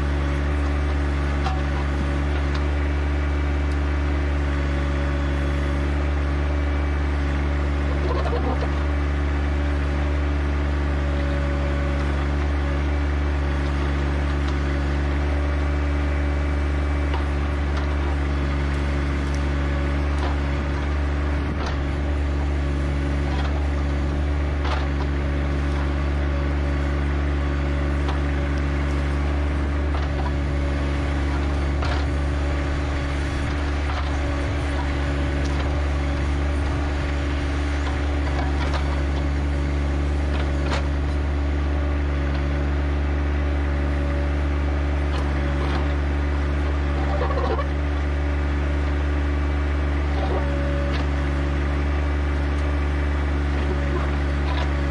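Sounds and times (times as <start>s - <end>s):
tractor diesel engine running: 0.0s - 54.9s
short knocks and clanks: 23.2s - 26.5s.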